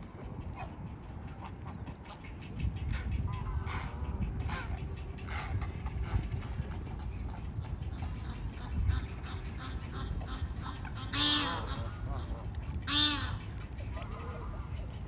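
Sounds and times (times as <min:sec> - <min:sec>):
loud honking bird call: 0:11.0 - 0:11.7, 0:12.9 - 0:13.4.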